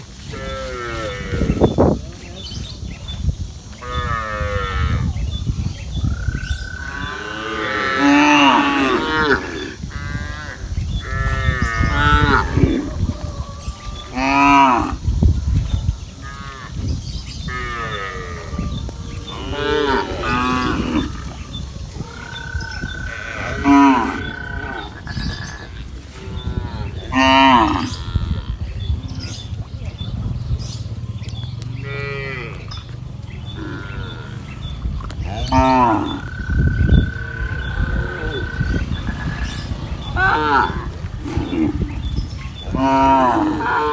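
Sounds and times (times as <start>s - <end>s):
cattle mooing: 6.7s - 15.0s, 17.5s - 28.6s, 31.8s - 32.7s, 33.6s - 34.6s, 35.2s - 43.9s.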